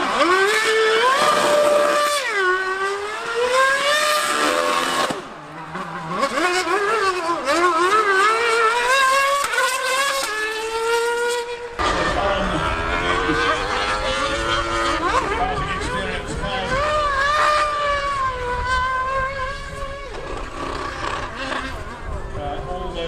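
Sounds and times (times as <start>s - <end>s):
racing engine revving: 0.0s - 23.0s.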